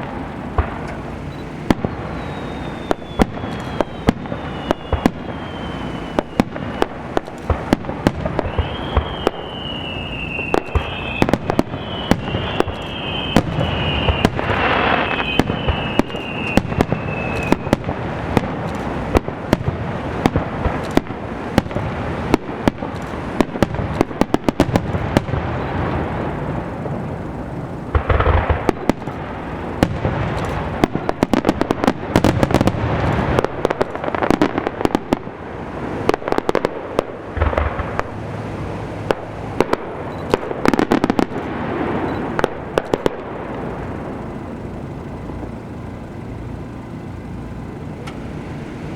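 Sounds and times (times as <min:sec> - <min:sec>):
heavy firework boom: 0:00.0 - 0:44.2
fireworks bangs and crackles: 0:00.0 - 0:48.9
high whistle: 0:01.3 - 0:07.0, 0:08.4 - 0:17.8.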